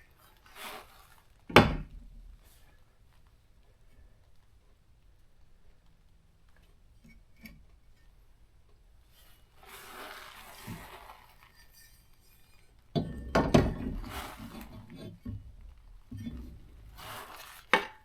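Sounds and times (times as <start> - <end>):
scraping rustle: 0.0 - 2.8, 9.1 - 12.9, 13.7 - 17.8
clatter of knocks and bangs: 13.0 - 15.4.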